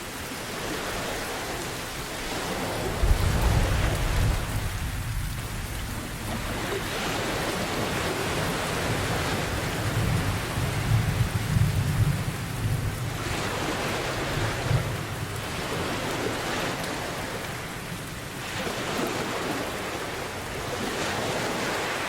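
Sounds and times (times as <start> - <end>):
heavy rain: 0.0 - 22.0
thunder rumbling: 2.7 - 16.4.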